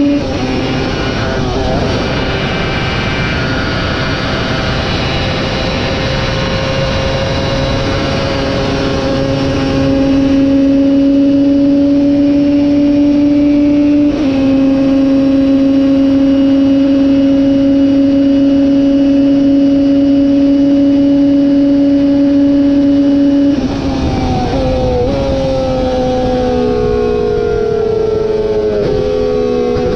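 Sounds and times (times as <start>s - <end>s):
racing motorcycle engine revving: 0.0s - 29.9s.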